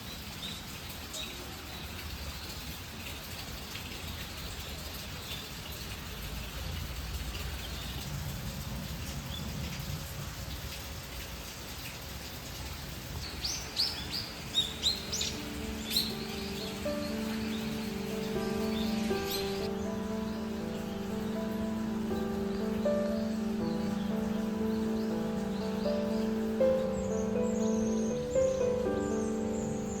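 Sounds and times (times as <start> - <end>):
background hiss: 12.1 - 30.0
birds chirping: 13.2 - 30.0.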